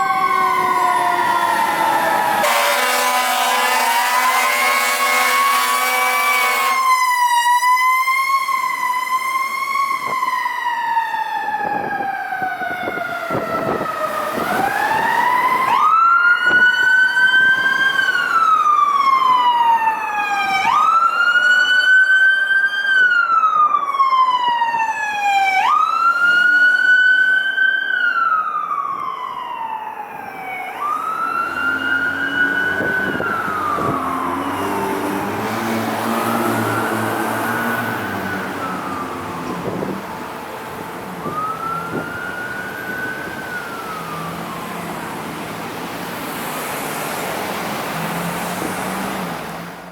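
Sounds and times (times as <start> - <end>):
fire truck siren wailing: 0.0 - 49.9
second siren: 0.0 - 49.9
air horn blasts: 2.4 - 7.7.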